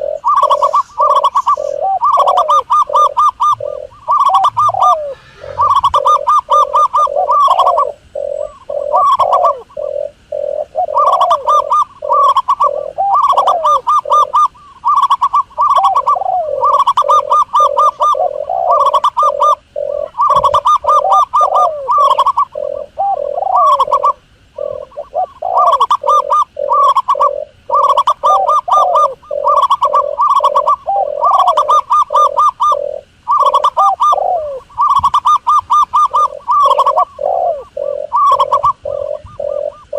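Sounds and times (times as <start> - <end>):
recorded doves cooing: 0.0 - 39.9.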